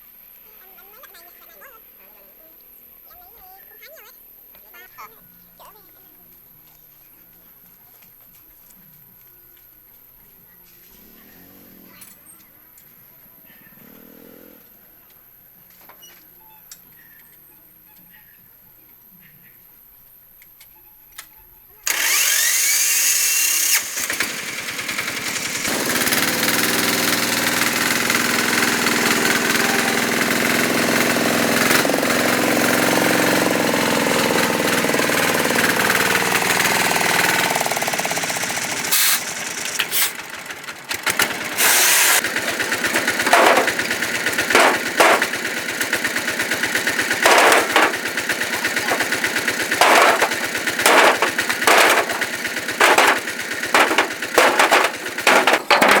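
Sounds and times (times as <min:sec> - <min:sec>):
motor machine humming: 0:23.7 - 0:56.0.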